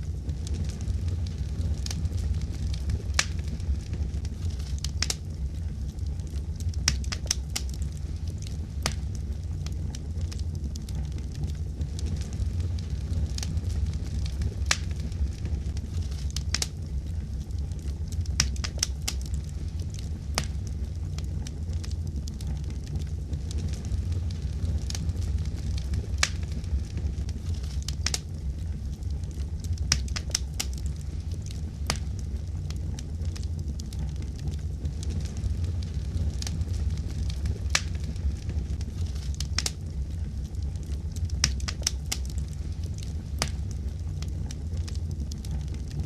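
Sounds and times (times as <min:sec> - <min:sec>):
low rumble: 0:00.0 - 0:46.0
wood fire crackling: 0:00.0 - 0:46.0.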